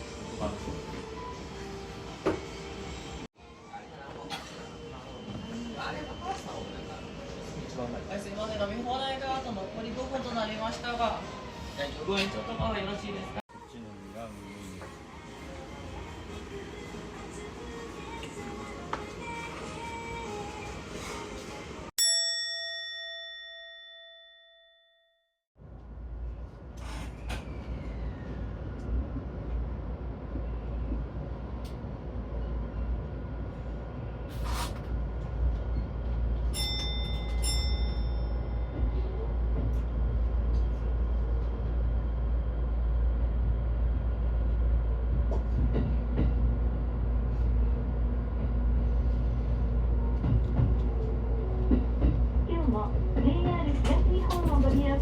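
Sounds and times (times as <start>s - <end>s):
train rumble inside carriage: 0.0s - 3.3s, 25.6s - 55.0s
bell-like ding: 22.0s - 25.3s, 36.6s - 38.7s.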